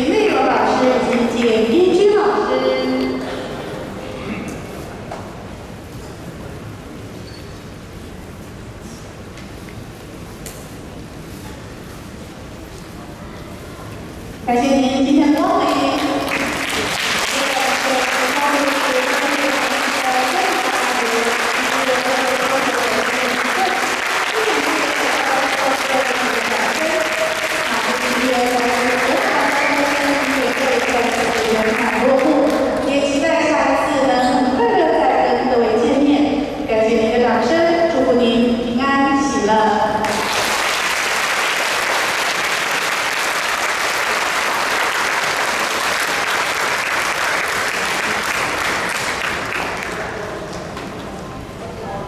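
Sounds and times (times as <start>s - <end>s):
audience applauding: 15.7s - 32.6s, 40.0s - 50.5s.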